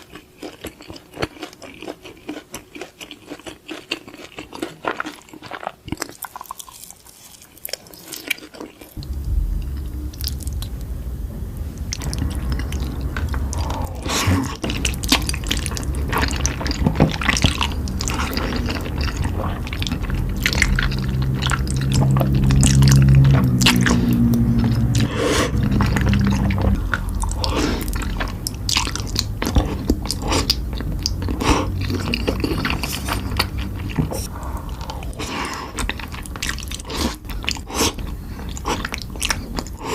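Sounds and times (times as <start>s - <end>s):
chewing and crunching mouth sounds: 0.0s - 9.1s, 11.9s - 39.9s
low steady rumble: 9.0s - 39.8s.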